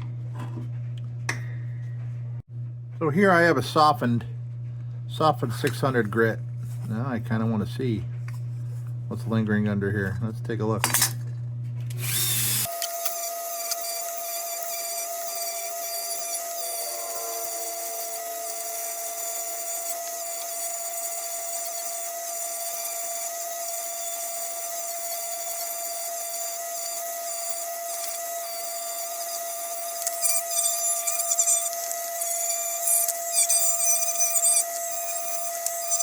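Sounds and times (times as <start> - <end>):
rotary power tool whining: 11.9 - 36.0
abrasive scratching on tin: 13.3 - 36.0.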